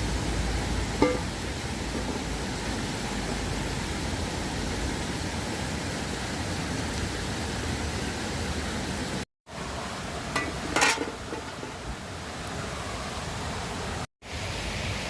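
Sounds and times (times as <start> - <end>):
river water rushing: 9.0 - 15.0.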